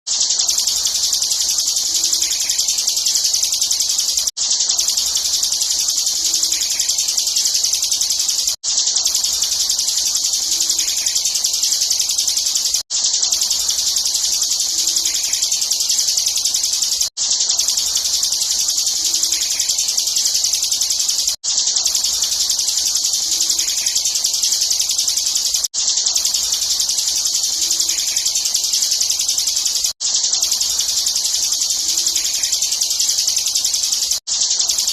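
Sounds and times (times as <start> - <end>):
bird chattering: 0.2 - 17.0.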